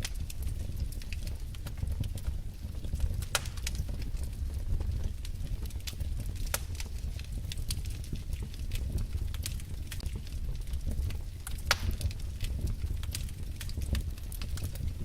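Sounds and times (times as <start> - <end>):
logs crackling and popping: 0.0 - 15.0
low rumble of flame: 0.0 - 15.0.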